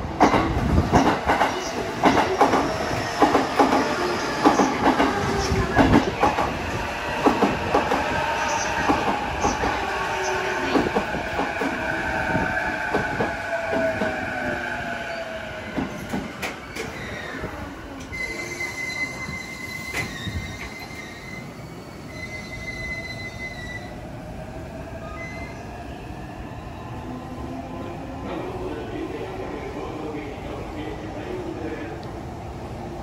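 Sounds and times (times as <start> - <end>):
high wheel squeal: 18.1 - 23.9.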